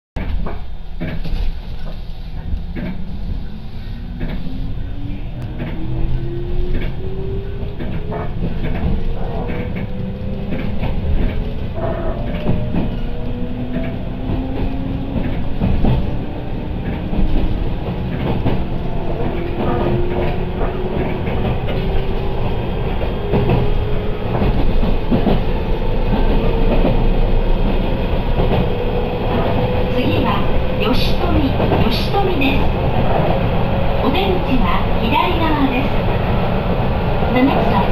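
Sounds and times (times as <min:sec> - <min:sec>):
train running rumble: 0:00.2 - 0:37.9
wheels clacking over rail joints: 0:05.4 - 0:33.4.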